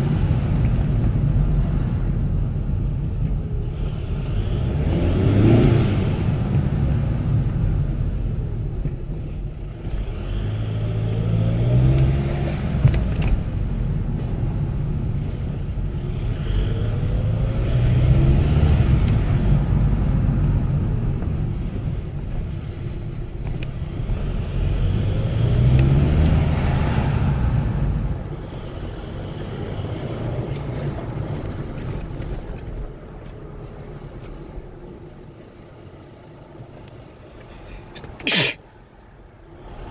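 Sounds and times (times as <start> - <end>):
diesel car engine revving: 3.6 - 8.0, 9.8 - 14.6, 15.2 - 33.0.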